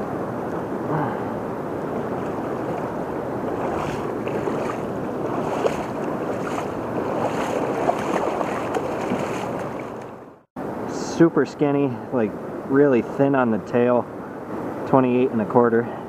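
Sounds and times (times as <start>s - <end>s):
river water running: 0.0s - 16.0s
faint ticks and splashes: 2.1s - 10.2s.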